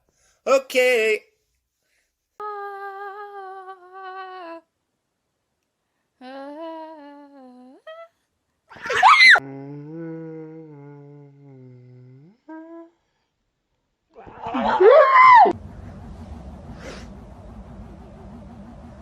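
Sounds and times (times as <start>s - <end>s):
loud rising and falling cry: 8.8s - 9.4s, 14.2s - 15.6s
long drawn-out vocal notes: 9.4s - 13.0s.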